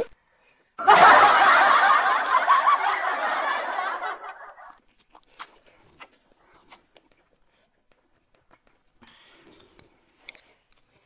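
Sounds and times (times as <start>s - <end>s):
many voices laughing: 0.8s - 4.8s
faint eating clicks: 4.7s - 11.0s.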